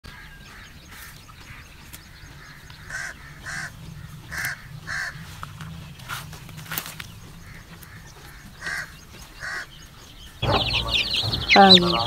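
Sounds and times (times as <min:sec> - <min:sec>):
bird calling: 0:00.0 - 0:12.0
steady low rumble: 0:01.6 - 0:09.4, 0:10.4 - 0:12.0.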